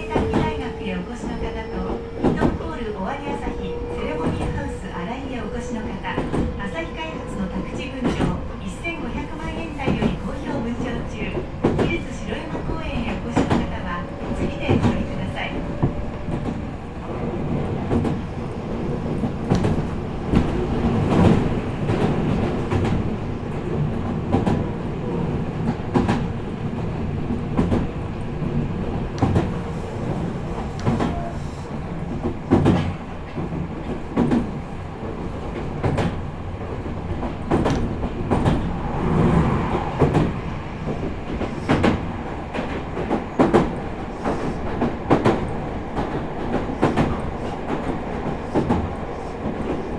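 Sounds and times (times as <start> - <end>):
train wheels rumbling on rail: 0.0 - 49.9.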